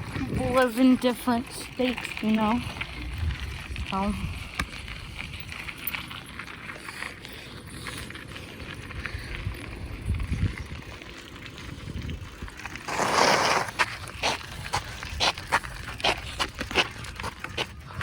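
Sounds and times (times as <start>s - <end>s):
wind on microphone: 0.0s - 0.8s, 2.4s - 5.8s, 8.6s - 13.4s
bicycle tyres rumbling on dirt: 0.0s - 18.0s.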